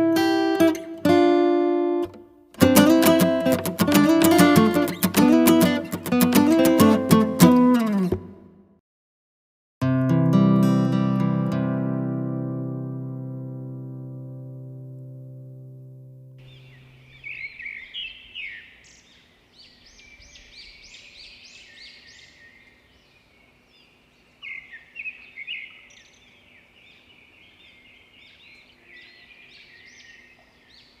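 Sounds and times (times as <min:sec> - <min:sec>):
birds chirping and singing: 0:16.4 - 0:31.0.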